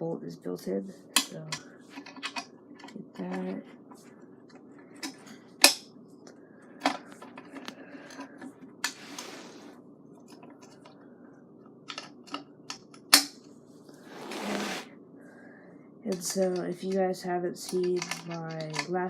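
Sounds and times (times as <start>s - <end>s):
metallic clicks of scooter parts: 17.7s - 19.0s.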